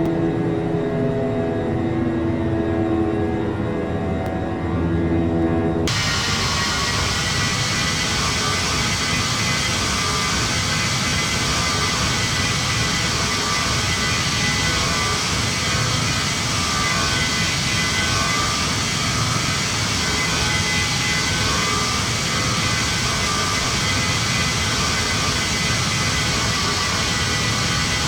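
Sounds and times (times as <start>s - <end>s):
jet cabin engine rush: 5.8s - 28.0s.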